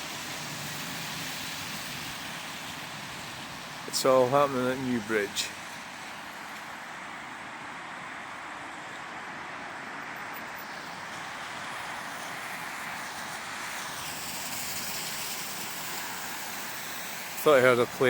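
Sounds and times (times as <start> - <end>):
road traffic noise: 0.0 - 18.0
tyres and engines of passing vehicles: 0.0 - 18.0.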